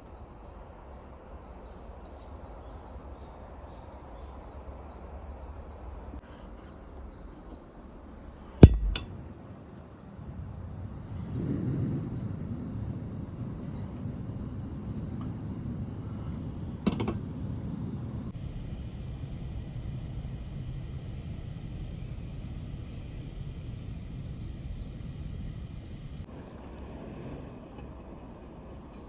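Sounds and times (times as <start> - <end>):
sharp knock: 8.6 - 9.2.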